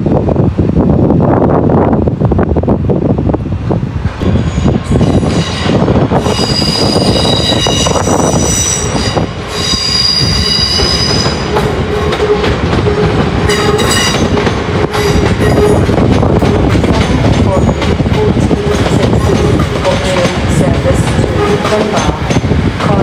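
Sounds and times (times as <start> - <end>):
train rumble: 0.0 - 23.0
train wheels squealing: 4.2 - 11.5.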